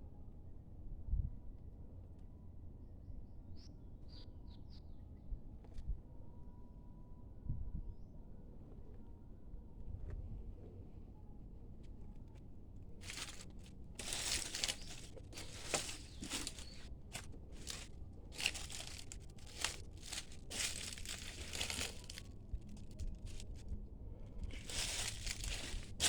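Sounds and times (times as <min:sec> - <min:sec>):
footsteps crunching dry leaves: 0:13.0 - 0:23.6, 0:24.5 - 0:26.0.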